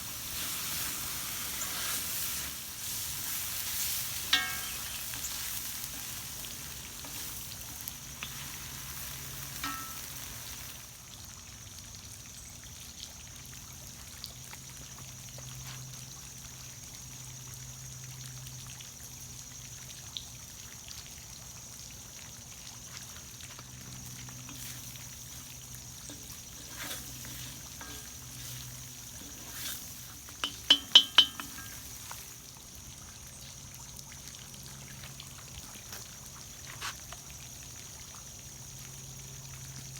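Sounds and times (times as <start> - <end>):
stir-fry sizzling in a wok: 0.0 - 11.4, 22.4 - 33.6
utensil clinking on metal wok: 2.2 - 8.4, 9.4 - 10.5, 24.5 - 25.4, 26.0 - 32.2.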